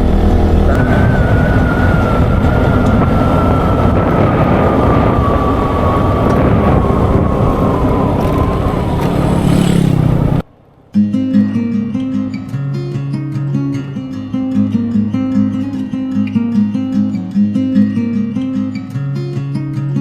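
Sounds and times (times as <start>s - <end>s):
wind rush: 0.0s - 10.5s
scooter engine: 0.0s - 11.0s
whine dropping in pitch: 0.0s - 13.1s.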